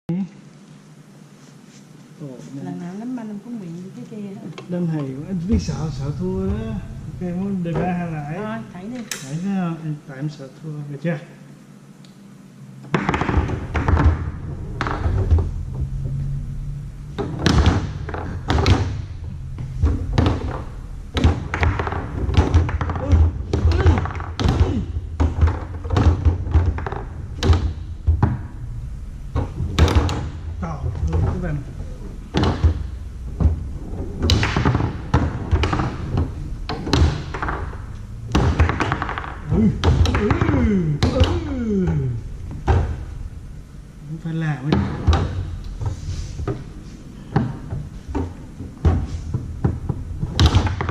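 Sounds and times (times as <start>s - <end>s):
foosball ball and rods knocking: 12.8s - 43.3s, 44.7s - 50.9s.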